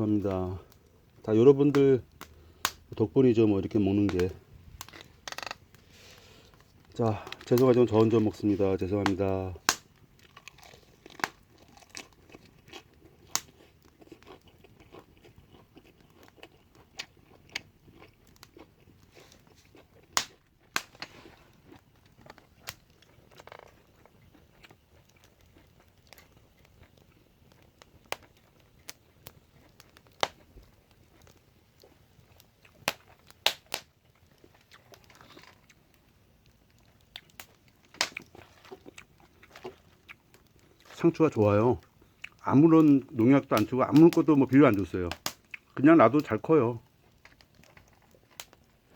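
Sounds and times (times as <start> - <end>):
person chewing: 9.7 - 29.9, 34.3 - 35.8, 36.8 - 41.0, 41.8 - 42.4.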